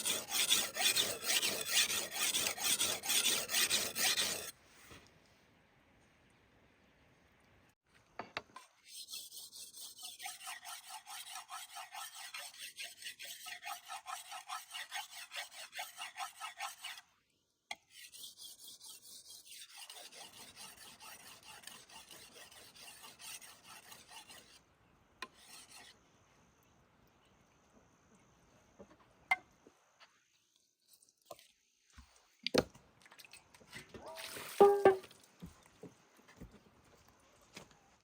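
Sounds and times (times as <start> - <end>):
hand tool rasping: 0.0 - 4.5, 9.0 - 17.0, 18.0 - 24.6.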